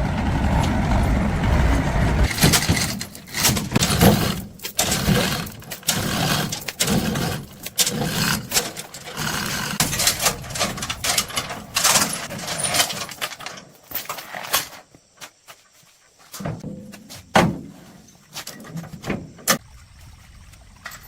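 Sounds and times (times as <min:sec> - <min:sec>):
scraping and clattering on metal: 0:00.4 - 0:14.8.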